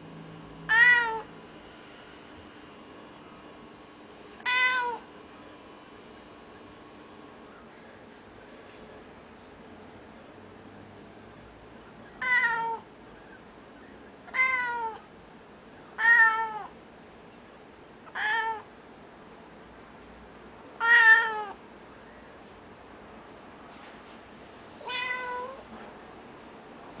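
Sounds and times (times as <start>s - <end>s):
cat meowing: 0.7s - 1.3s, 4.4s - 5.0s, 12.2s - 12.8s, 14.3s - 15.1s, 16.0s - 16.7s, 18.1s - 18.7s, 20.8s - 21.6s, 24.8s - 25.7s.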